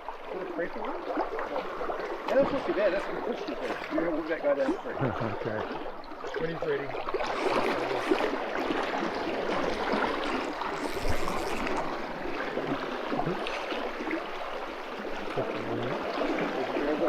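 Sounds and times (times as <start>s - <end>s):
water splash: 5.4s - 17.0s.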